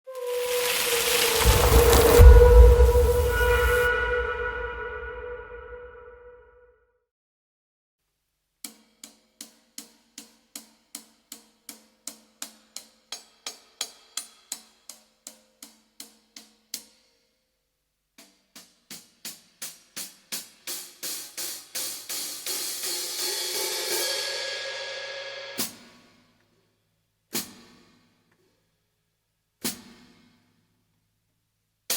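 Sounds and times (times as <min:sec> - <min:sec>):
hi-hat cymbals struck with stick: 0:09.0 - 0:16.5, 0:18.6 - 0:26.3.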